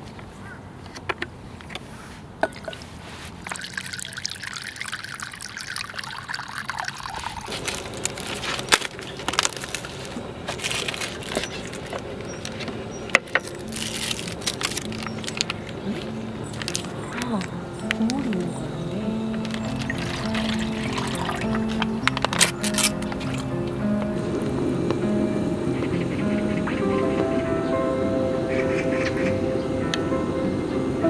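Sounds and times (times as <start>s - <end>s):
liquid pouring into container: 2.4s - 12.7s, 19.2s - 23.5s.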